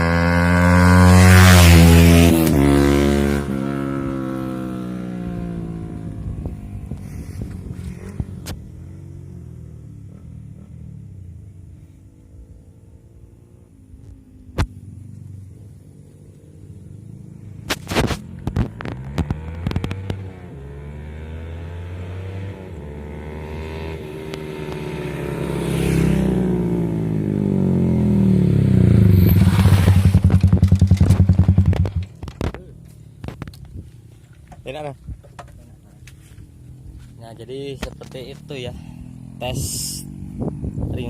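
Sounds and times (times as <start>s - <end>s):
motorcycle engine revving: 0.0s - 34.3s, 36.0s - 41.0s
motorcycle exhaust pops: 6.4s - 8.8s, 14.0s - 15.0s, 17.6s - 20.4s, 29.2s - 36.2s, 37.7s - 38.4s.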